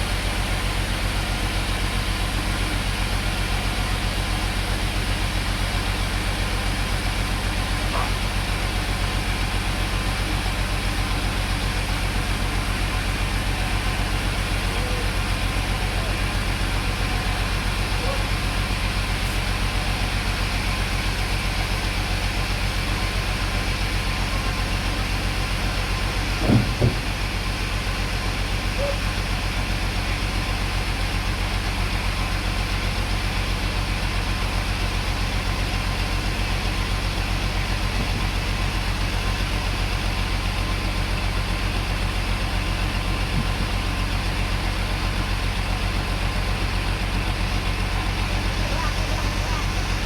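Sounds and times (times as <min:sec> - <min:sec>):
sawmill engine running: 0:00.0 - 0:50.0
short knocks: 0:26.4 - 0:27.2.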